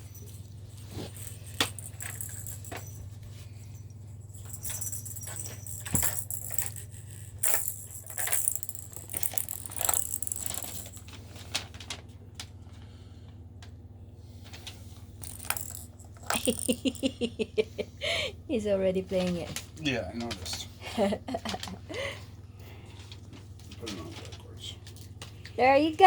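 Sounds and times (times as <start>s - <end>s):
cat toy jingling and rattling: 0.0s - 11.3s, 15.2s - 17.4s
low steady hum: 0.0s - 26.0s.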